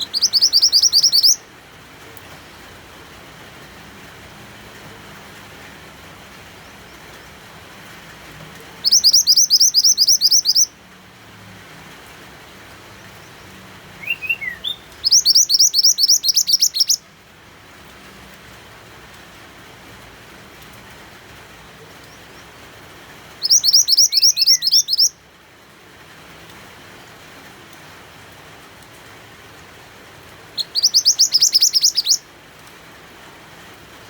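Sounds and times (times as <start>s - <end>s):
bird chirps: 0.0s - 1.4s, 8.8s - 10.7s, 14.0s - 17.0s, 23.4s - 25.2s, 30.6s - 32.2s
songbird trilling: 0.0s - 1.4s, 8.8s - 10.7s, 14.0s - 17.0s, 23.4s - 25.2s, 30.6s - 32.2s
rain hiss: 0.0s - 34.0s.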